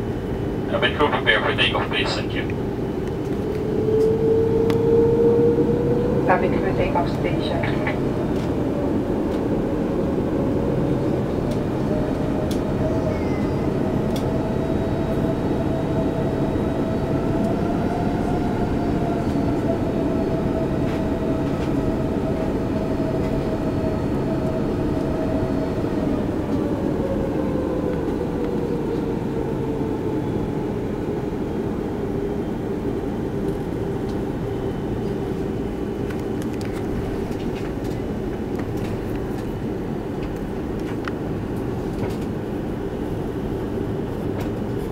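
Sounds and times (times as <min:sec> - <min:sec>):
steady engine tone: 0:00.0 - 0:33.3
jet engines rumbling in cabin: 0:00.0 - 0:44.9.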